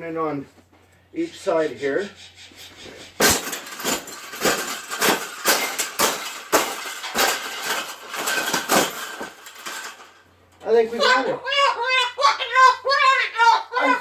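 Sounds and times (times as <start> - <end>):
wire cage clanking and rattling: 3.0 - 10.8.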